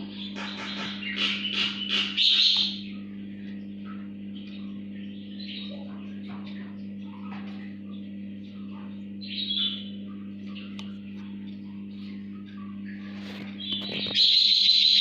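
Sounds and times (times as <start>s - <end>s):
low electrical hum: 0.0s - 15.0s
chick chirping and squeaking: 0.1s - 2.8s, 12.6s - 15.0s.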